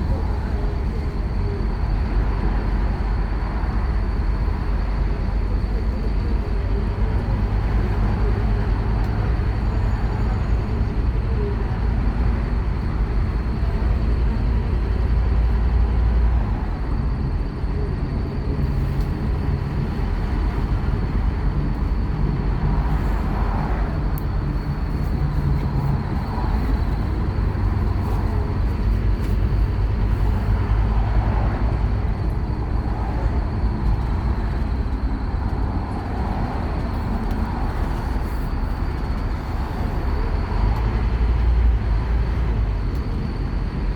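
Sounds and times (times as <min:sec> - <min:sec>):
bus diesel engine droning: 0:00.0 - 0:43.9
bus rattling: 0:00.0 - 0:43.9.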